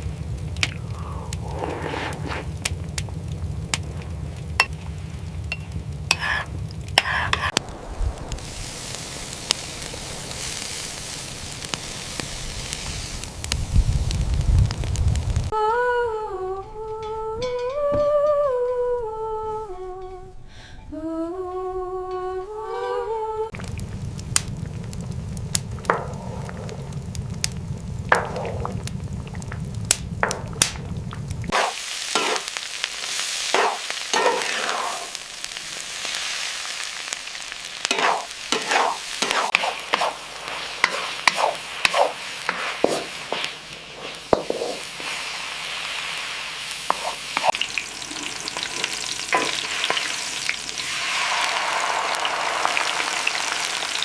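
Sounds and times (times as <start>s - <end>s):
food sizzling in a pan: 0.0s - 15.6s, 23.5s - 54.0s
low rumble: 0.0s - 17.4s, 18.1s - 31.6s
utensil clicking and scraping: 0.6s - 2.8s, 6.1s - 7.6s.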